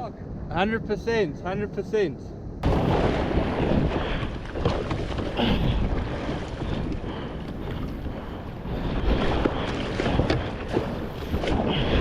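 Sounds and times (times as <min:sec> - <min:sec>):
wind buffeting microphone: 0:02.5 - 0:12.0
water sloshing and splashing: 0:02.6 - 0:12.0.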